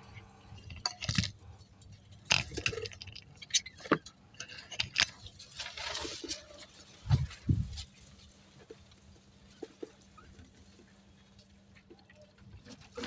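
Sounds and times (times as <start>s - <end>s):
rustle in birdcage: 5.2s - 13.0s.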